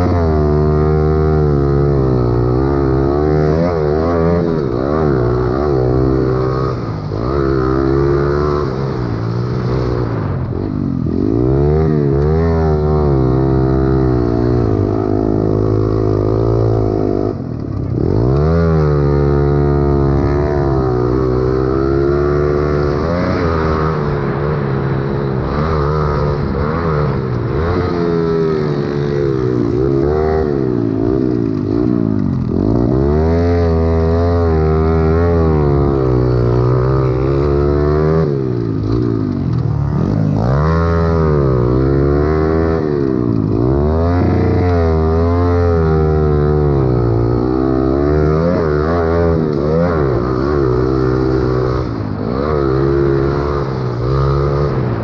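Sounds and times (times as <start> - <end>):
pit bike engine revving: 0.0 - 55.0.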